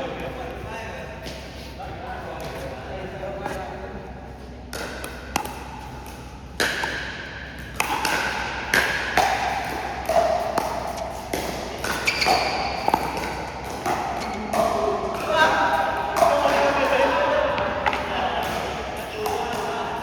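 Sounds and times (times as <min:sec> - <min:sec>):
paddles hitting plastic ball: 0:04.7 - 0:16.8.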